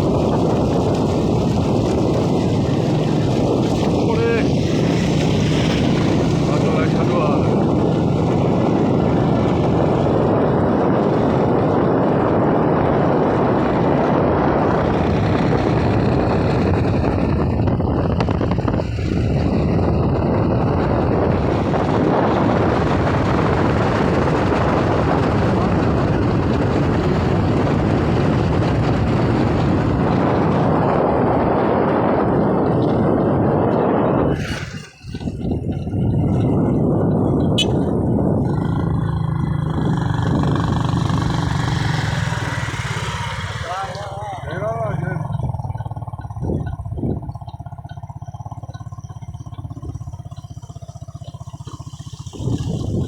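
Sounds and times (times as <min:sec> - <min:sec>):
vehicle driving through flood water: 0:00.0 - 0:17.2, 0:37.6 - 0:53.0.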